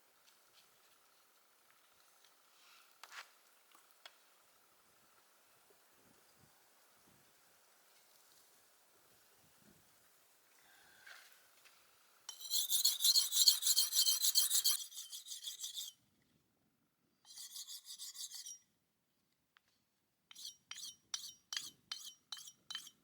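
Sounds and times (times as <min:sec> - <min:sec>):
rapid rhythmic rasping strokes: 0:12.3 - 0:15.9, 0:17.3 - 0:18.6.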